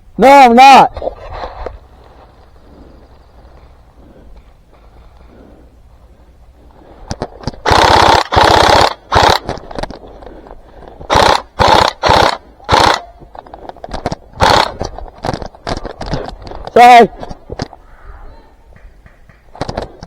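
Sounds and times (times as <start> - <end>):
airsoft gun rapid fire: 7.6 - 9.6, 11.1 - 13.1, 14.4 - 14.8.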